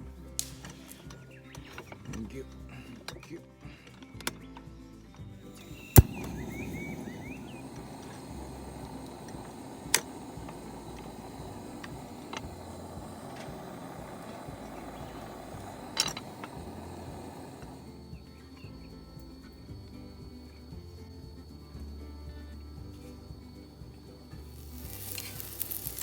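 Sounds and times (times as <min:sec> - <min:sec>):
fire crackling: 0:05.5 - 0:22.0, 0:22.6 - 0:26.0
campfire burning: 0:05.5 - 0:26.0.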